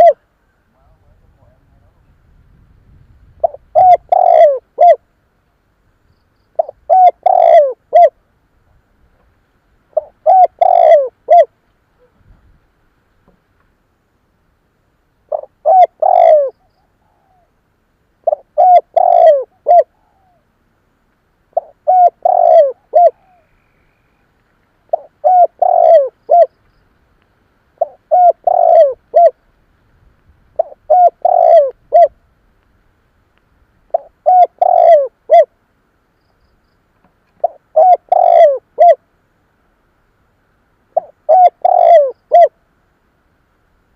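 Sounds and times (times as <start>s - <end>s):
dove cooing: 0.0s - 0.2s, 3.4s - 5.0s, 6.6s - 8.2s, 9.9s - 12.2s, 15.3s - 17.6s, 18.2s - 20.5s, 21.5s - 24.1s, 24.9s - 26.6s, 27.8s - 29.4s, 30.6s - 32.2s, 33.9s - 35.5s, 37.4s - 39.0s, 41.0s - 42.6s.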